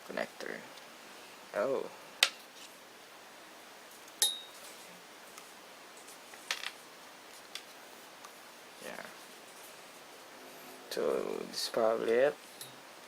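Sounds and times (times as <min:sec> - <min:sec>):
brief metallic ring: 0:04.2 - 0:04.6.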